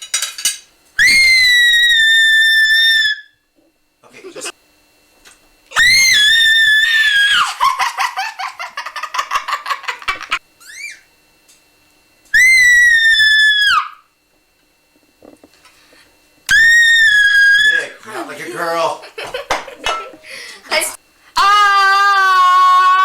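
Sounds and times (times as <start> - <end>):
boy shrieking: 5.8 - 7.6, 12.4 - 14.0, 16.5 - 18.0, 21.4 - 23.0.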